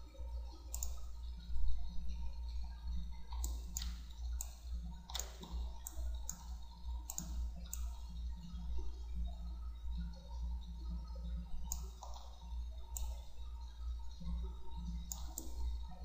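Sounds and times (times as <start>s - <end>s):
steady low hum: 0.0s - 16.0s
computer mouse clicking: 0.7s - 1.1s, 3.3s - 8.0s, 11.6s - 12.3s, 12.9s - 13.3s, 15.1s - 15.6s.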